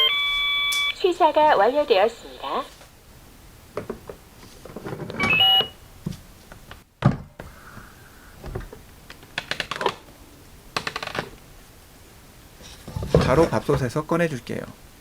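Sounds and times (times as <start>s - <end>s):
rice cooker electronic chime: 0.0s - 1.0s, 5.2s - 5.8s.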